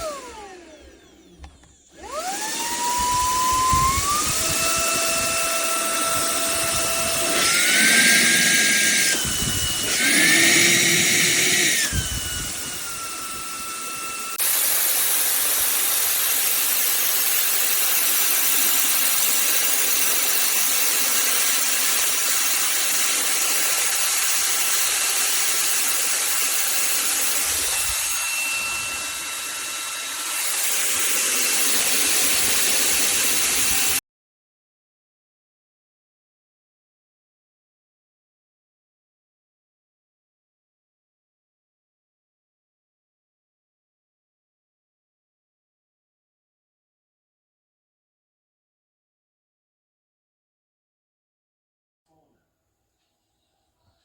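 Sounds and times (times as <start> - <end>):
handheld vacuum cleaner whining: 0.0 - 34.0.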